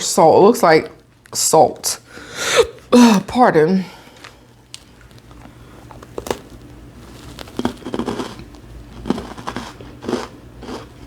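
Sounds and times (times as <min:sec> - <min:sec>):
biscuit crunching: 0:04.1 - 0:11.0
mouth chewing sounds: 0:07.2 - 0:11.0.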